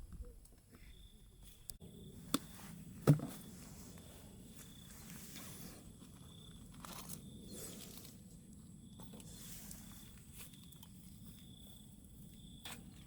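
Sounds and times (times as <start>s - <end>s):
soft rustles or crunches: 2.5s - 8.3s, 9.0s - 13.0s.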